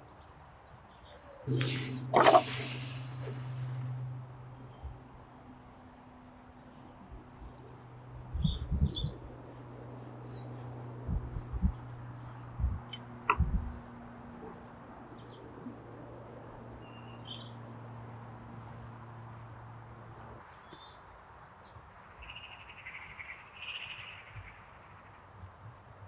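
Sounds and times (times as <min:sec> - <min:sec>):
low steady hum: 0:01.5 - 0:20.4
small birds chirping: 0:06.5 - 0:13.8, 0:14.4 - 0:19.5, 0:20.2 - 0:25.6.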